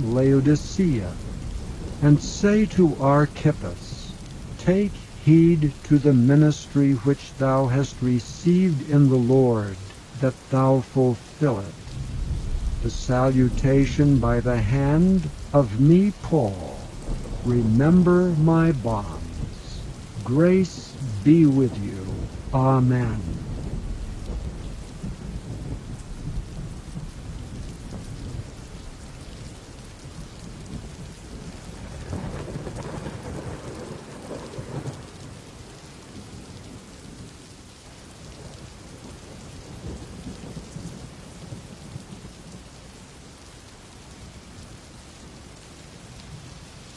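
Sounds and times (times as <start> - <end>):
low rumbling thunder: 0.0 - 6.1, 11.2 - 37.3
steady rain: 0.0 - 46.9.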